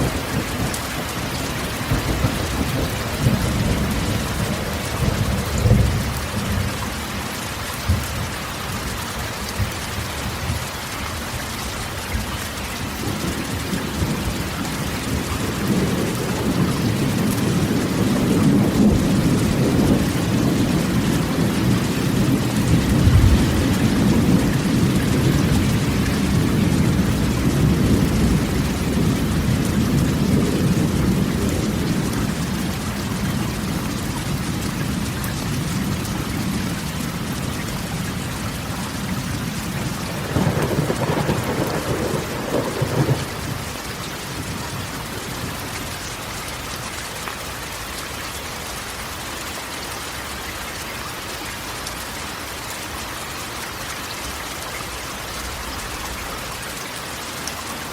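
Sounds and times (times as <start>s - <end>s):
thunder rumbling: 0.0s - 6.9s, 12.8s - 45.9s
rain on a metal roof: 0.0s - 57.9s.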